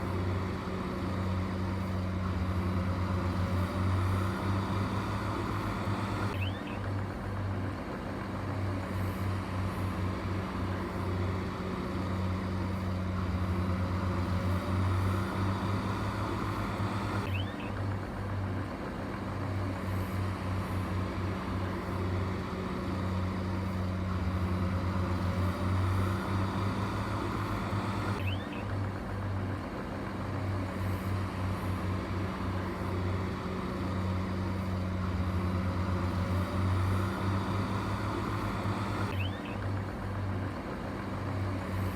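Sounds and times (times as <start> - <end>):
heavy machinery diesel engine droning: 0.0 - 41.9.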